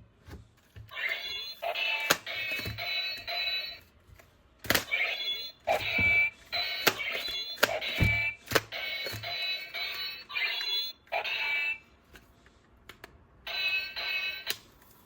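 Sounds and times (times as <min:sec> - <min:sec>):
toy gun siren-like beeping: 0:01.0 - 0:03.9, 0:04.8 - 0:11.9, 0:13.5 - 0:14.5.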